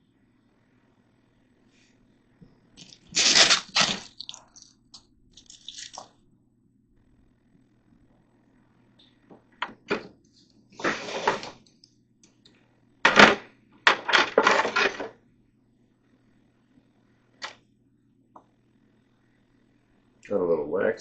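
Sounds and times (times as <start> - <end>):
rattling scrape: 10.8 - 11.6
clatter of hard objects: 13.1 - 15.2.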